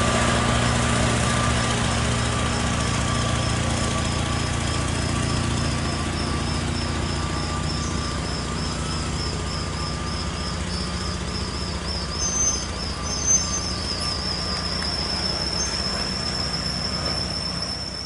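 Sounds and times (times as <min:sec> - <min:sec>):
low engine rumble: 0:00.0 - 0:18.0
high-pitched chirping: 0:05.6 - 0:18.0.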